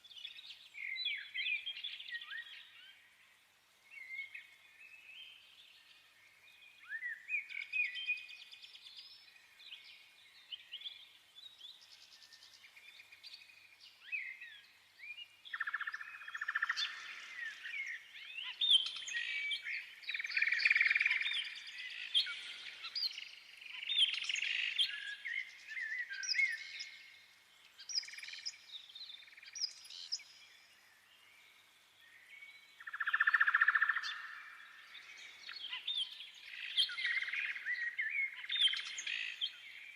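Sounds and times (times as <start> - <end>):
birds chirping and singing: 11.6 - 30.8, 31.4 - 39.9.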